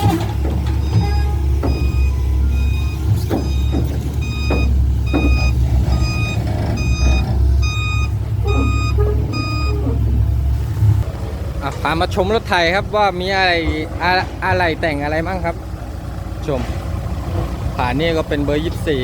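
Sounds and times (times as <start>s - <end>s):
diesel engine rumble: 0.0s - 19.0s
reversing alarm beeping: 0.4s - 10.2s.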